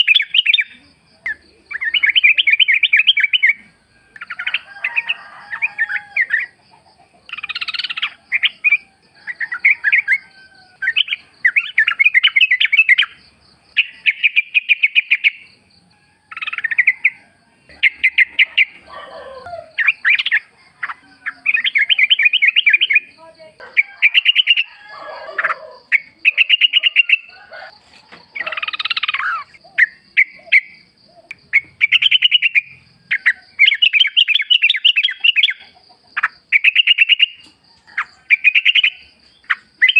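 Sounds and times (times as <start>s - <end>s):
birds singing chattering phrases: 0.0s - 15.6s, 16.3s - 39.9s.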